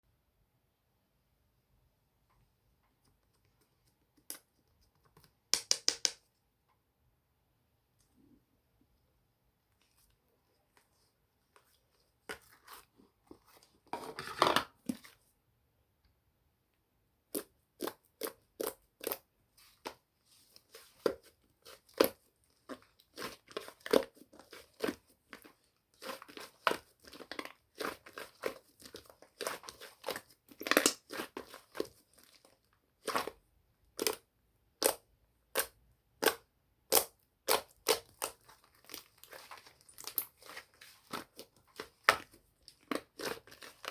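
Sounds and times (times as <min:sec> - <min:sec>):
slime crinkly squish: 0:17.4 - 0:33.4, 0:35.6 - 0:43.9.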